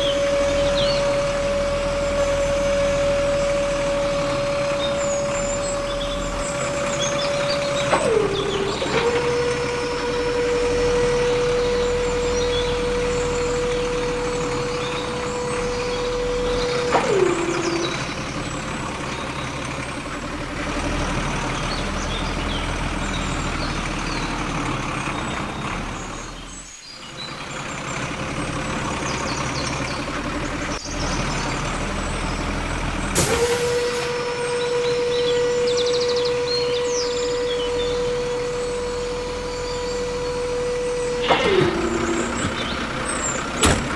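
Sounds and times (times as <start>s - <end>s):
small electric motor whining: 0.0s - 18.3s, 33.3s - 43.6s
birds chirping faintly: 0.0s - 20.4s, 34.2s - 43.9s.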